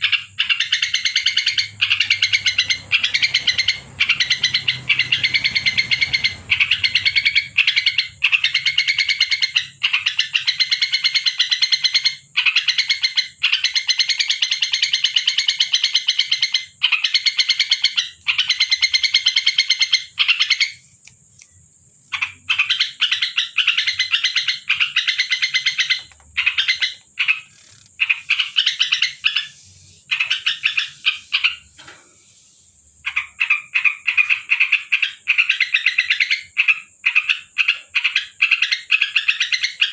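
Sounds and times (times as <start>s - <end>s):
bulbul chattering calls: 0.0s - 20.8s, 22.2s - 31.8s.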